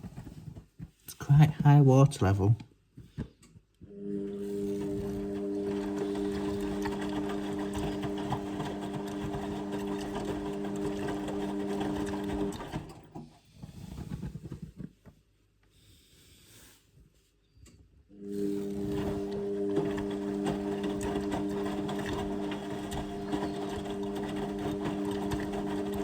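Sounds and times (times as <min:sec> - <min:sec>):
washing machine motor hum: 0:03.9 - 0:14.5, 0:18.1 - 0:26.0.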